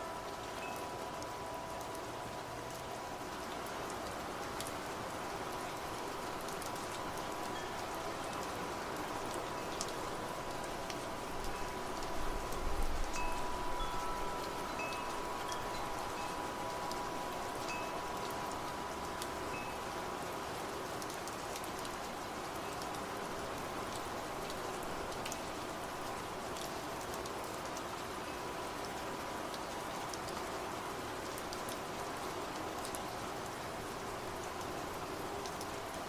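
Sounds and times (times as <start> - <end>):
wind chimes ringing: 0.0 - 1.7, 13.1 - 19.9
rain drops ticking: 0.0 - 36.0.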